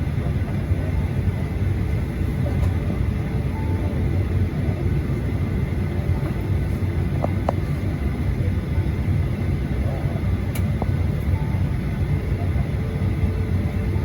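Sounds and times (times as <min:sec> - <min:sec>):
aircraft cabin rumble: 0:00.0 - 0:14.0.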